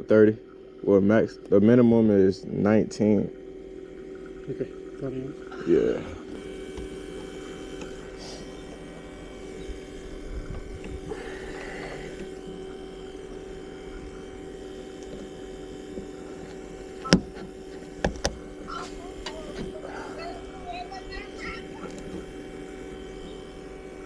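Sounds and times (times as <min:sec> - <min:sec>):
steady hum of fixed tones: 0:00.0 - 0:24.0.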